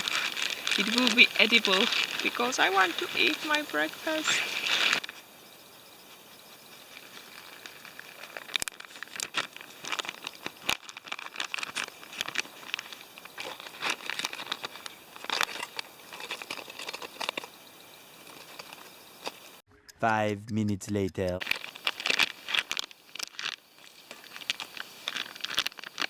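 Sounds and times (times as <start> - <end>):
plastic packaging crinkling: 0.0 - 3.6, 4.2 - 5.1, 6.9 - 17.5, 21.4 - 26.0.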